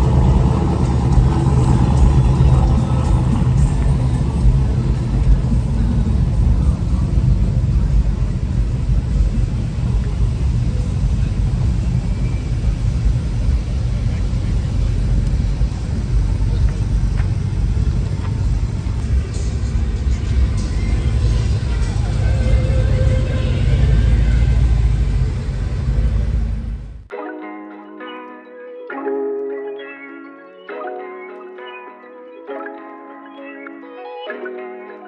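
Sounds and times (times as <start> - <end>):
vehicle engine rumbling: 0.0 - 27.1.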